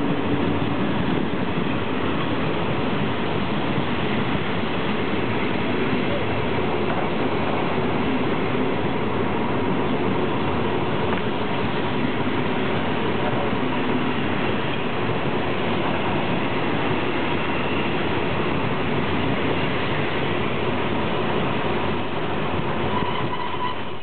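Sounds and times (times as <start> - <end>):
train wheels rumbling on rail: 0.0 - 24.0
faint high squeal: 22.9 - 24.0.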